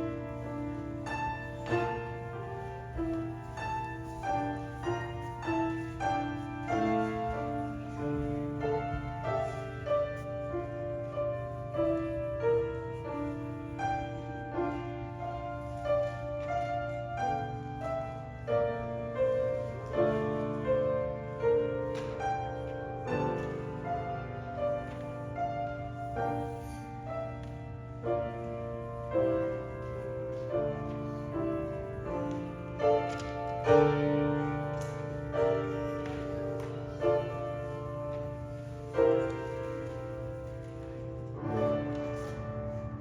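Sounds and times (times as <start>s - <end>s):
slow keyboard music: 0.0s - 43.0s.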